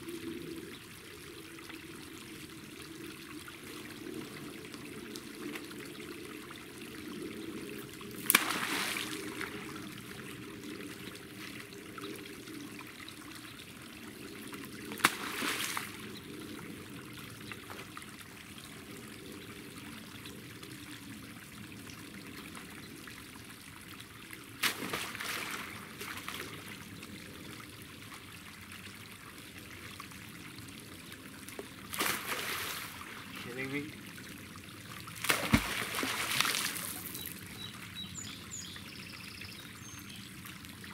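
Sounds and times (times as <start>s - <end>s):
water trickling: 0.0s - 40.9s.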